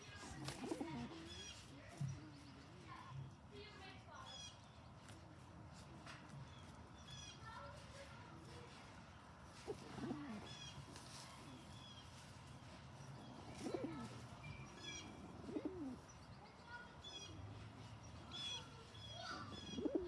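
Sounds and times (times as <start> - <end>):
pigeon cooing: 0.3 - 1.4, 9.6 - 10.7, 13.3 - 16.1, 19.3 - 20.0.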